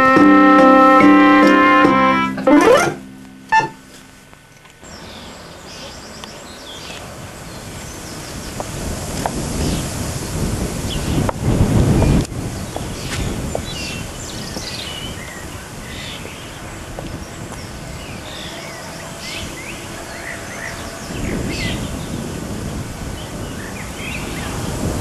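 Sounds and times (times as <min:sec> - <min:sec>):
small birds chirping: 0:04.8 - 0:08.7, 0:12.6 - 0:22.2
wind rumbling on microphone: 0:06.9 - 0:25.0.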